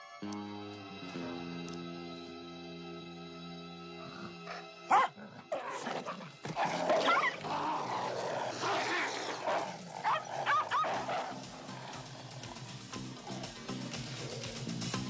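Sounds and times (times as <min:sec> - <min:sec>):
dogs fighting: 0:04.0 - 0:15.0
dog yelps: 0:04.9 - 0:05.8, 0:06.9 - 0:07.5, 0:08.6 - 0:12.0.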